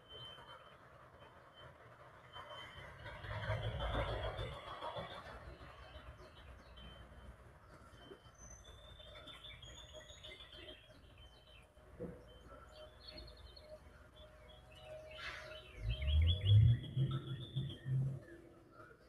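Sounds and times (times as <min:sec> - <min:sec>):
wild birds chirping: 0:05.5 - 0:19.0.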